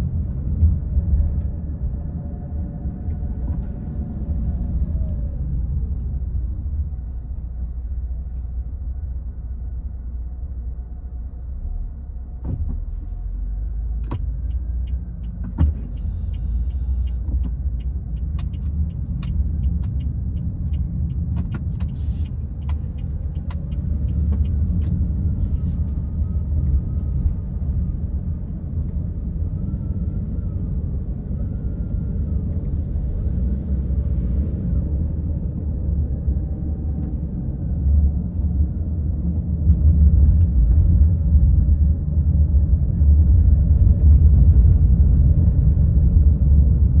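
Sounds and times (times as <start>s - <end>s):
car engine and road noise: 0.0s - 47.0s
light ticks: 14.0s - 25.0s.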